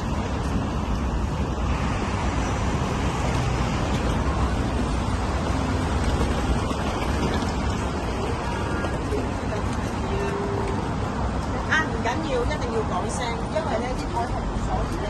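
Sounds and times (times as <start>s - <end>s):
city street traffic rumble: 0.0s - 15.0s.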